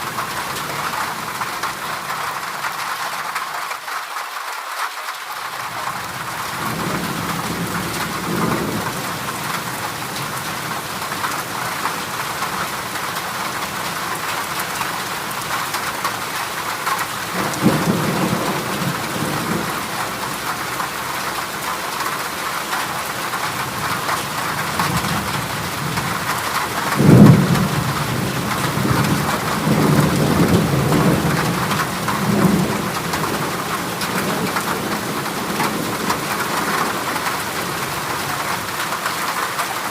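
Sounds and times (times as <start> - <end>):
heavy rain on a metal roof: 0.0 - 39.9
thunder rumbling: 5.8 - 14.5, 15.3 - 22.0, 23.2 - 38.8
loud thunder clap: 17.4 - 20.4, 24.7 - 37.1.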